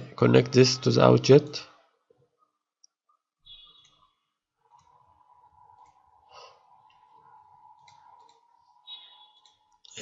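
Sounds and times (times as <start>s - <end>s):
faint steady hum: 3.8s - 10.0s
soft breath near microphone: 5.0s - 7.6s.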